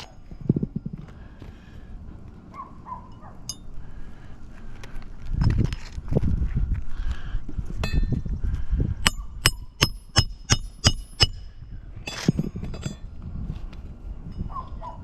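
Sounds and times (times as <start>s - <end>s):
metallic strikes with high ring: 3.1s - 3.8s, 9.0s - 13.0s.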